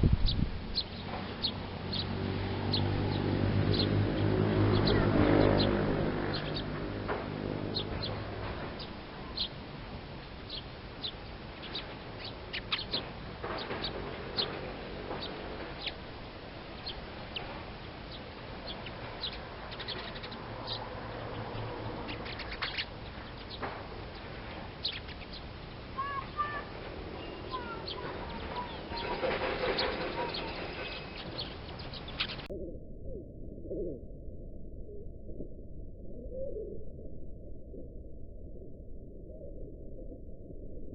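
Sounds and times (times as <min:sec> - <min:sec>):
small birds chirping: 0:00.0 - 0:32.5
faint low hum: 0:00.0 - 0:40.9.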